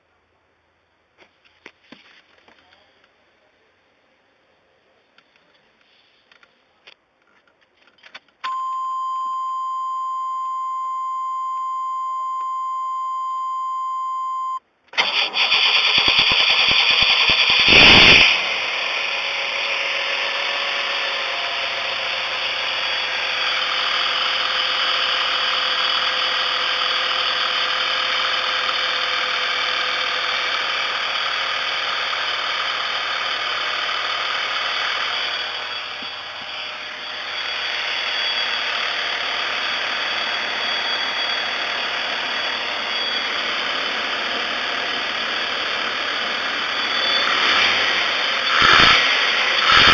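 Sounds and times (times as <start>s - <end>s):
electronic warning tone: 8.5s - 14.6s
engine cranking on starter: 14.9s - 36.5s, 43.3s - 49.9s
engine revving and idling: 15.0s - 49.9s.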